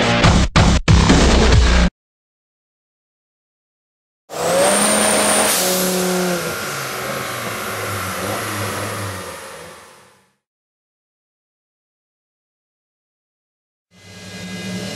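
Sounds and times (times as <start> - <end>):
engine running hard: 4.3 - 10.4
thin high whine: 4.6 - 10.2.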